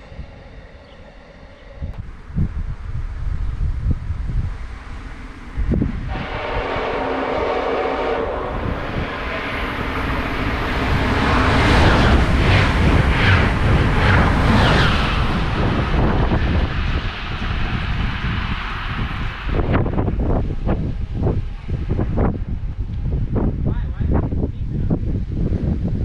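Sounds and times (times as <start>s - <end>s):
train passing: 0.0s - 26.0s
train horn blast: 6.0s - 9.9s.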